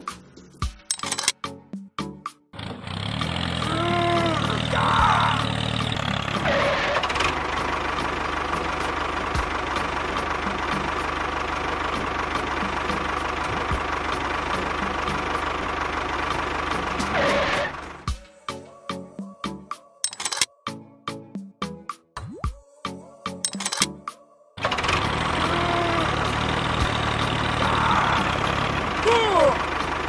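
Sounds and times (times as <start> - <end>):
engine running with low pulse: 2.6 - 18.4, 24.6 - 30.0.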